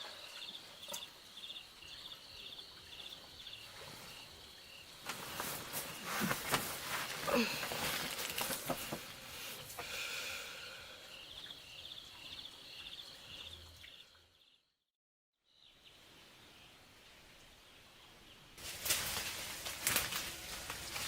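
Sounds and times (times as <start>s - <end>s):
faint steady high hiss: 0.0s - 13.9s, 15.5s - 21.0s
knocks and rustles: 5.0s - 9.9s.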